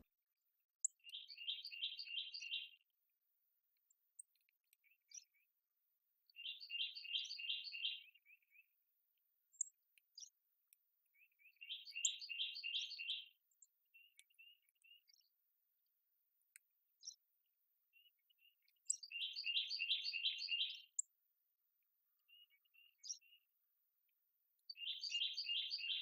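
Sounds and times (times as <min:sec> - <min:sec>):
short bird chirps: 0:00.8 - 0:02.8, 0:06.4 - 0:08.6, 0:11.2 - 0:15.2, 0:18.0 - 0:21.1, 0:24.7 - 0:26.0
songbird singing: 0:00.8 - 0:02.9, 0:03.8 - 0:05.6, 0:06.2 - 0:08.8, 0:09.5 - 0:21.2, 0:22.0 - 0:26.0.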